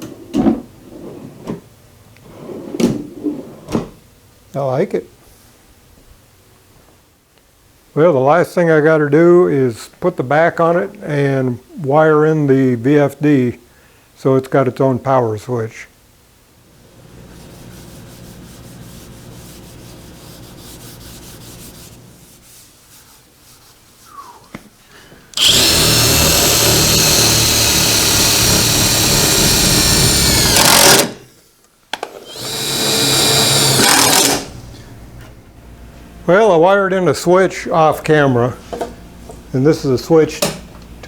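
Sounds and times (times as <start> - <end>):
faint steady hum: 0.0 - 41.0
power drill running: 25.4 - 31.2, 32.2 - 34.6.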